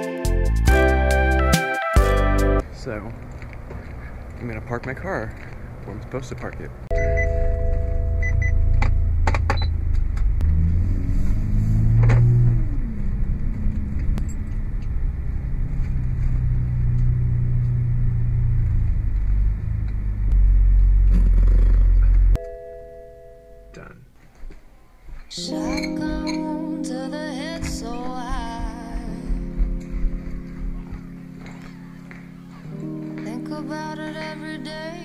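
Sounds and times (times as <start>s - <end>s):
electronic warning chime: 6.9s - 9.7s
car engine running: 7.0s - 22.4s.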